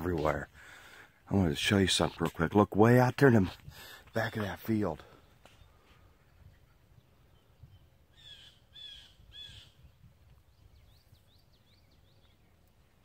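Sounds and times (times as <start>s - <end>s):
harsh bird calls: 3.8s - 13.0s
small bird chirps: 5.2s - 13.0s
low wind rumble: 5.6s - 13.0s.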